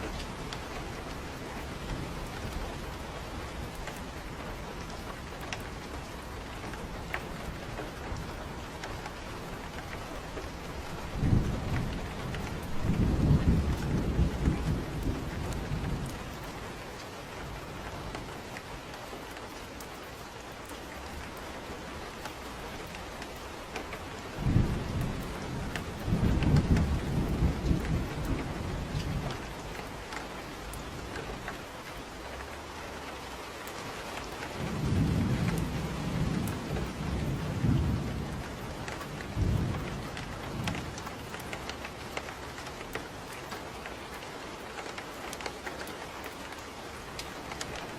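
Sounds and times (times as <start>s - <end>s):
thunder rumbling: 0.0s - 18.6s, 23.8s - 31.5s, 34.4s - 43.4s
steady rain: 0.0s - 47.9s.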